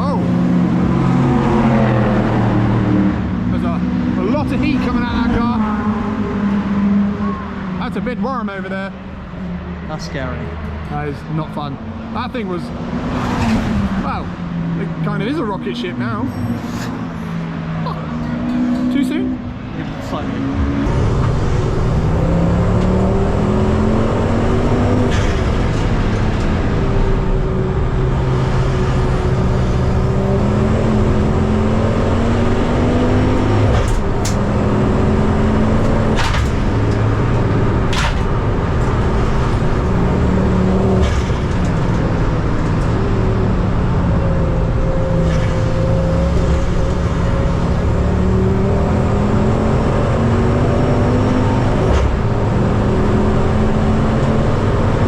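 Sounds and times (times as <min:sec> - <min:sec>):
race car engine revving: 0:00.0 - 0:55.0
sharp knocks: 0:37.8 - 0:39.0.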